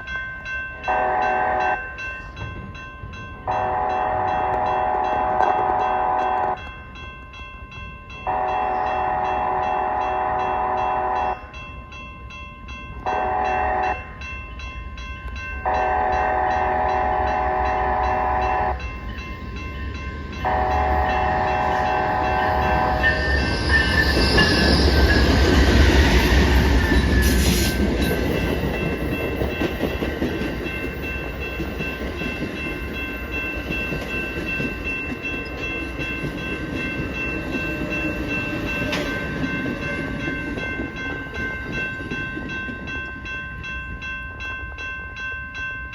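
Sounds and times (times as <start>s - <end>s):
train horn blasts: 0.8s - 1.9s, 3.5s - 6.6s, 8.3s - 11.5s, 13.0s - 14.1s, 15.6s - 18.8s, 20.4s - 23.4s.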